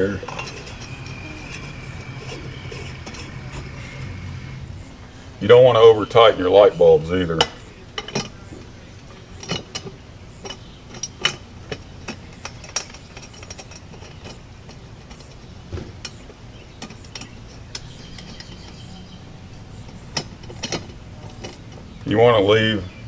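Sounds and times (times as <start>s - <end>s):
glass globe clinking on metal: 0.0s - 4.6s, 9.2s - 22.0s.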